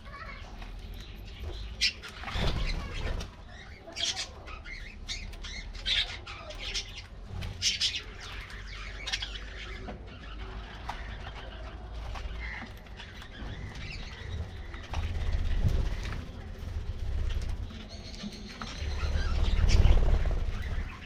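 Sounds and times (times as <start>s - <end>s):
budgerigars chirping and squawking: 0.1s - 16.5s, 17.2s - 21.0s.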